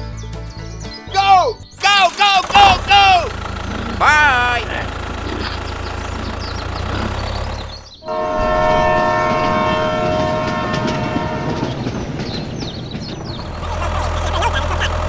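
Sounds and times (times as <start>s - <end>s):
horn held note: 8.0s - 11.9s.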